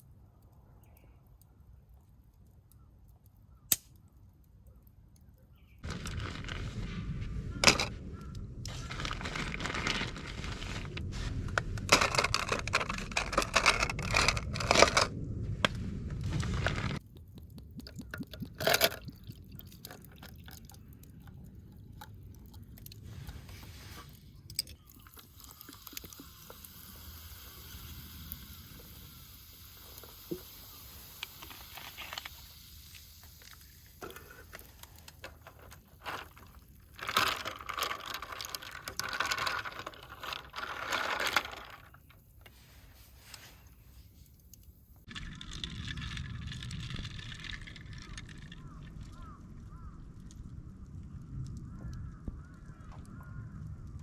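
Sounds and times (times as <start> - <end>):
sharp clicks: 3.2 - 4.0
scraping and crunching handling noise: 5.8 - 17.2, 31.2 - 48.8
faint clicks and taps: 17.0 - 20.9.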